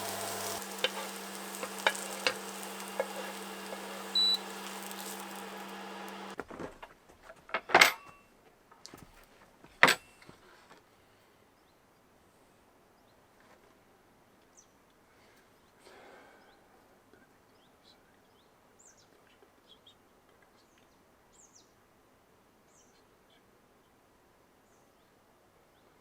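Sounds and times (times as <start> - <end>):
electric hum: 0.0 - 6.4
short high beep: 4.2 - 4.4.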